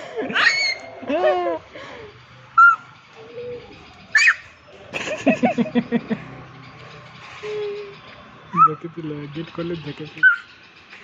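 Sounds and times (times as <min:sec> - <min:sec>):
baby squeaking and cooing: 0:03.5 - 0:04.5.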